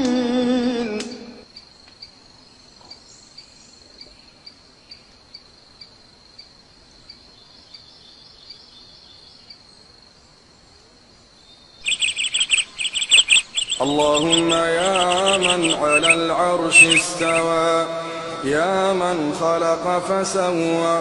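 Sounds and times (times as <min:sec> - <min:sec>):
insect trilling: 0:11.8 - 0:17.6.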